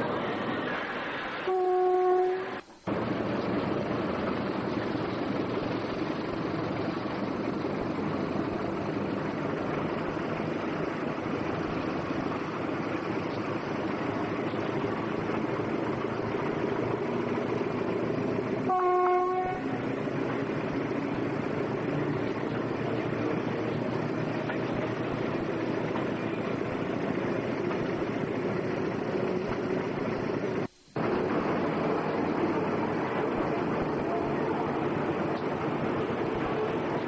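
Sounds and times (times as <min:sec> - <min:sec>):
train rumbling: 0:00.0 - 0:37.0
train horn blast: 0:01.4 - 0:02.6, 0:18.7 - 0:19.8.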